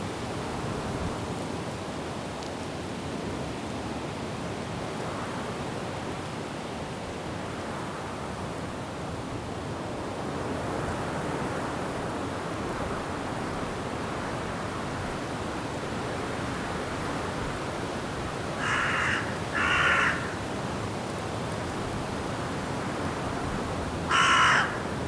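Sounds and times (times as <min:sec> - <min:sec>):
wind rushing through trees: 0:00.0 - 0:25.0.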